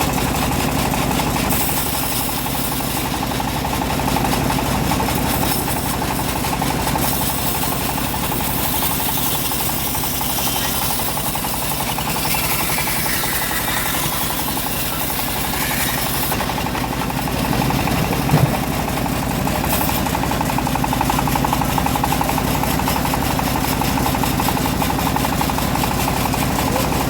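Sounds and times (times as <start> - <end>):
engine-driven bandsaw running: 0.0 - 27.0.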